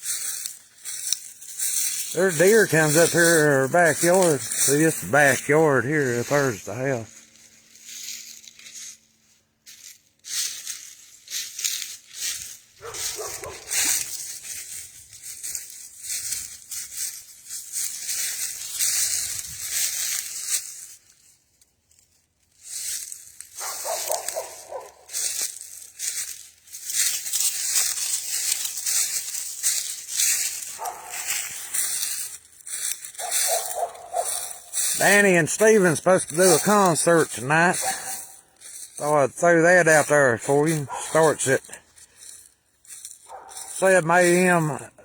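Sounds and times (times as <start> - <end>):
footsteps crunching dry leaves: 0.0 - 45.0.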